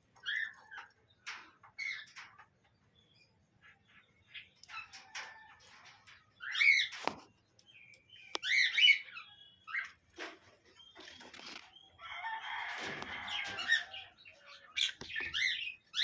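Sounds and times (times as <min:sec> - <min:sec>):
parrots chirping and squawking: 0:00.2 - 0:02.5, 0:06.2 - 0:07.1, 0:08.4 - 0:10.1, 0:11.2 - 0:16.0.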